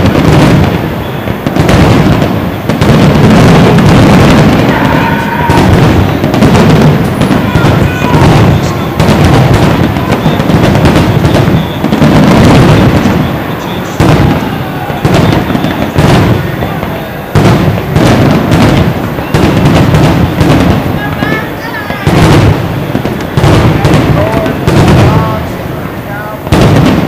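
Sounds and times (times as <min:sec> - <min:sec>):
firework shells bursting: 0:00.0 - 0:27.0.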